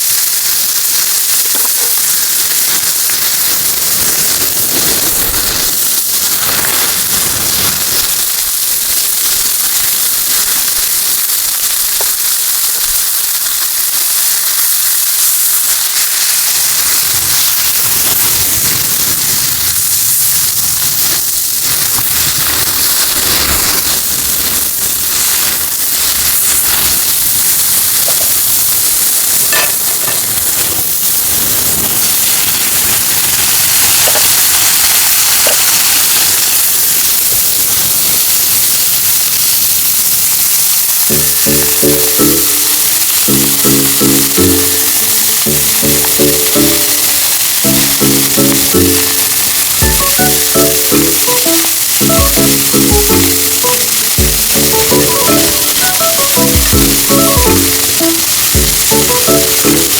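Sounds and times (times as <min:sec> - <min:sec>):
fire crackling and popping: 0:00.0 - 0:59.9
food sizzling in a frying pan: 0:00.0 - 0:59.9.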